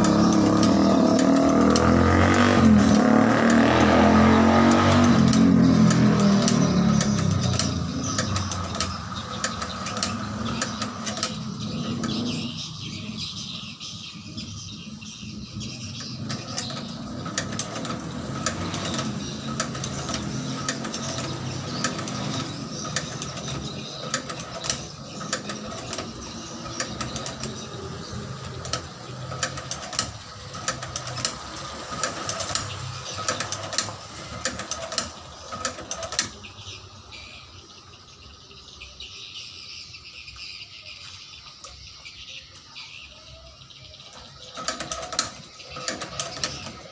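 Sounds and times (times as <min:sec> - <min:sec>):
stitching machine running: 0:00.0 - 0:12.3, 0:16.1 - 0:36.4, 0:44.5 - 0:46.9.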